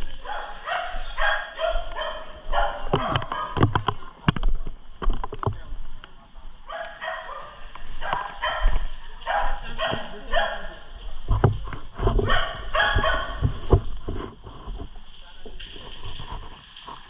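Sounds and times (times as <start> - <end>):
dog barking: 0.2 - 3.6, 6.7 - 10.8, 12.2 - 13.5.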